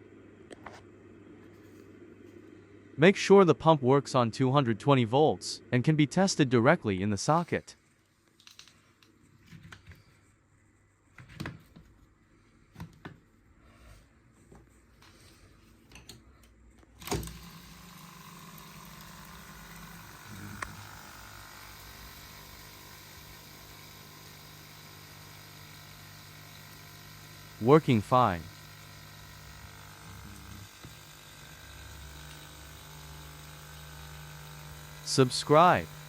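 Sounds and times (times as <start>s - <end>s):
pump humming: 17.0s - 36.0s.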